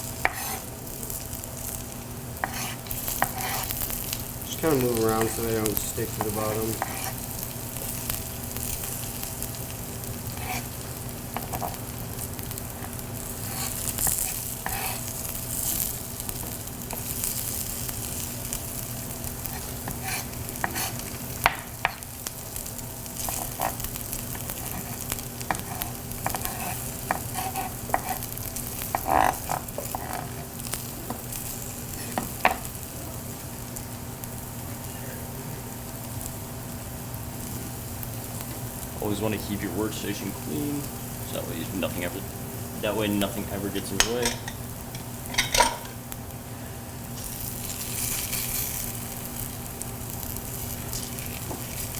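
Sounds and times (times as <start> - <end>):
pancakes sizzling in a pan: 0.0 - 42.2, 42.8 - 51.9
utensil clicking and scraping pan: 0.2 - 0.7, 2.4 - 3.8, 4.6 - 7.2, 12.8 - 15.0, 19.5 - 21.0, 23.2 - 30.5.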